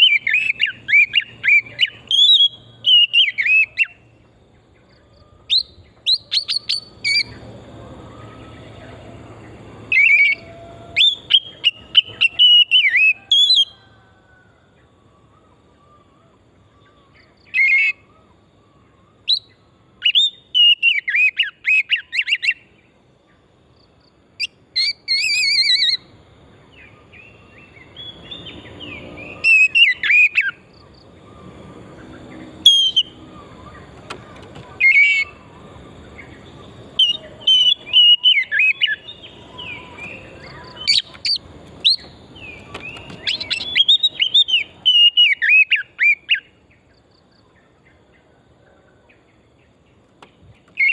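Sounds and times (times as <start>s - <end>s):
bird singing whistled phrases: 0.0s - 4.0s, 5.5s - 7.4s, 9.9s - 13.8s, 19.3s - 22.6s, 24.4s - 26.0s, 27.8s - 30.6s, 32.6s - 33.9s, 37.0s - 46.5s.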